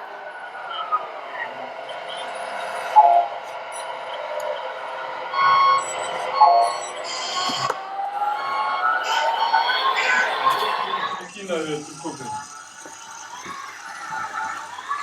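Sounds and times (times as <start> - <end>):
steady electronic beep: 1.8 - 4.2, 5.1 - 10.0.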